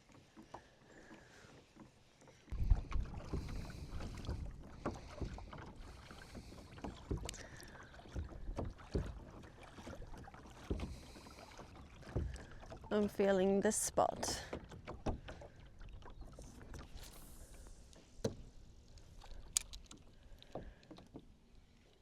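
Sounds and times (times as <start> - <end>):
water sounds: 0.0 - 22.0
wind buffeting microphone: 2.5 - 6.5
kayak knocks: 2.6 - 12.6, 14.2 - 15.5.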